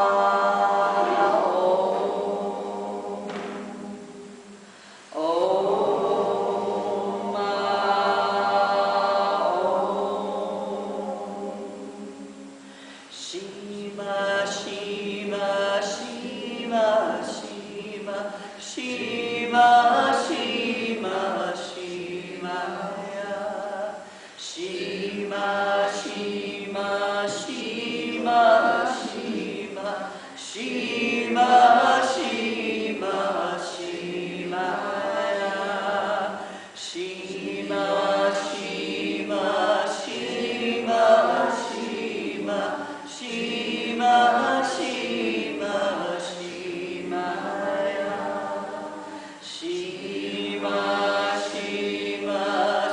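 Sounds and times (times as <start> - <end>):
group chanting in unison: 0.0 - 52.9.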